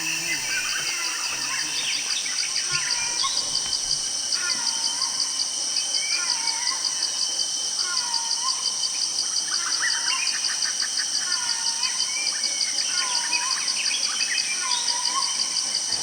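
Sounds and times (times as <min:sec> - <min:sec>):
insect chorus with pulsing trill: 0:00.0 - 0:16.0.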